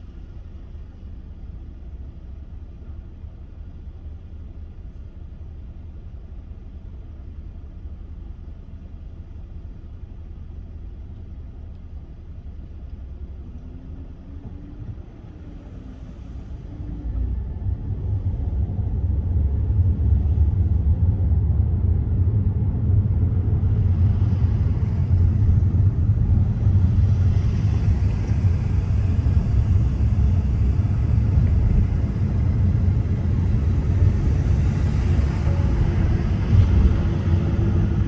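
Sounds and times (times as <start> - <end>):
car road and engine rumble: 0.0 - 38.0
tyre and wind hiss: 23.7 - 38.0.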